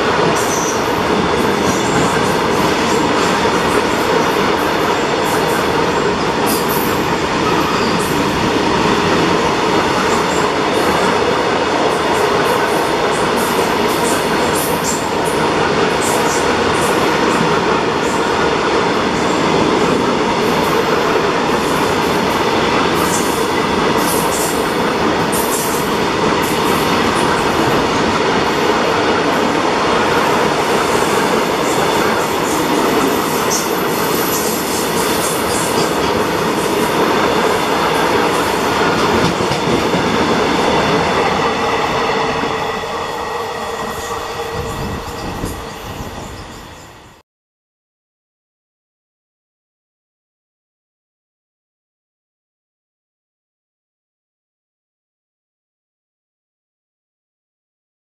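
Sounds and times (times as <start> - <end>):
train wheels rumbling on rail: 0.0 - 47.2.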